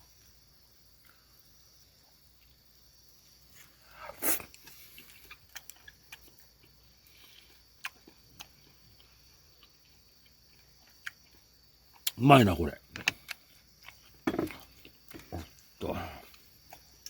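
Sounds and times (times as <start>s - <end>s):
person eating: 4.0s - 12.2s, 13.0s - 17.0s.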